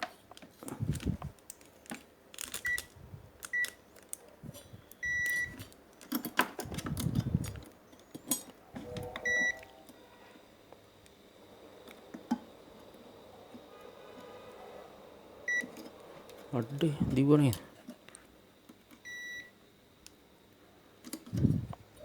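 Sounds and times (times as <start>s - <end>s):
clicks and handling noise: 0.0s - 10.0s
multimeter beeps: 3.5s - 3.8s, 5.0s - 5.6s, 9.2s - 9.6s, 15.5s - 15.7s, 19.0s - 19.5s.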